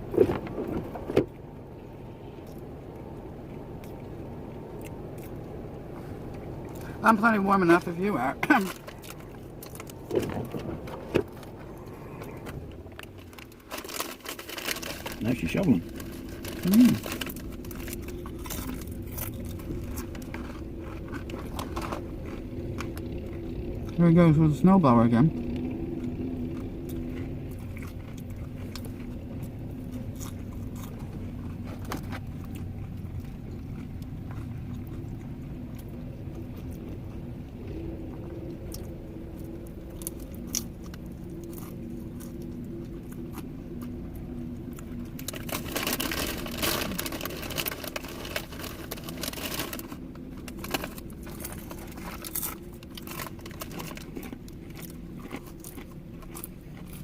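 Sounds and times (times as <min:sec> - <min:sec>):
low cabin hum: 0:00.0 - 0:57.0
person crunching and chewing fries: 0:02.3 - 0:24.0, 0:25.3 - 0:57.0
paper bag crinkling: 0:13.1 - 0:20.4, 0:45.2 - 0:54.3.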